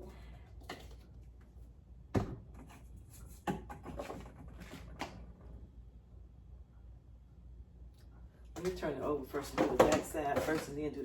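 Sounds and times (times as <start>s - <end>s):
kitchen containers and utensils clattering: 9.4s - 10.9s.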